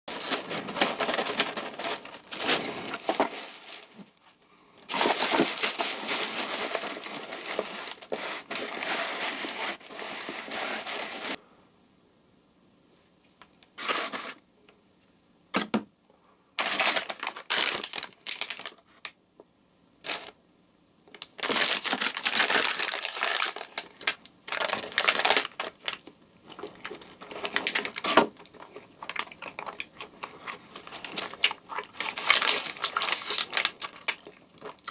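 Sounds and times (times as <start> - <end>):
food packaging crinkling: 0.1 - 4.2, 4.9 - 11.4, 16.6 - 19.2, 21.1 - 34.9.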